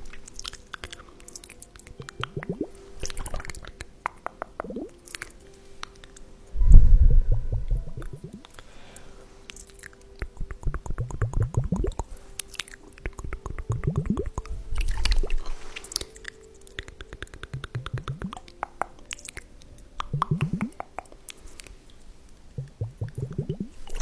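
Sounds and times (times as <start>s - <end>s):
glass ampoules clicking wetly: 0.0s - 6.2s, 9.5s - 21.7s.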